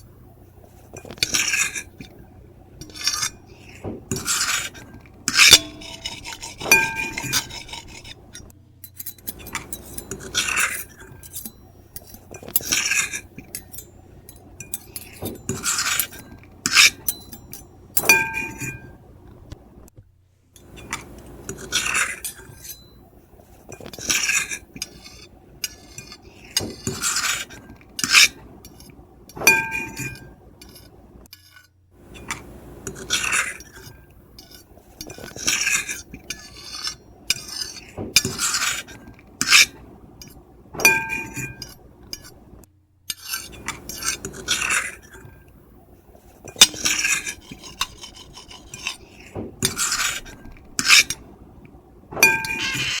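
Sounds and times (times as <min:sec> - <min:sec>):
fork and knife scraping a plate: 0:00.7 - 0:02.2, 0:02.8 - 0:19.0, 0:20.6 - 0:42.4, 0:43.1 - 0:45.5, 0:46.1 - 0:51.3, 0:52.2 - 0:53.0
ringing squeal of cutlery: 0:05.3 - 0:07.8, 0:29.5 - 0:30.3, 0:40.8 - 0:41.7, 0:52.2 - 0:53.0.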